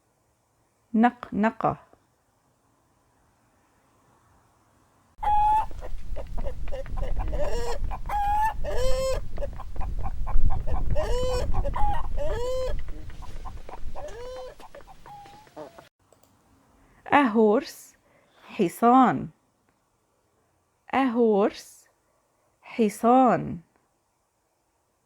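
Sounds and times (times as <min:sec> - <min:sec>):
hens clucking: 0:05.2 - 0:15.9.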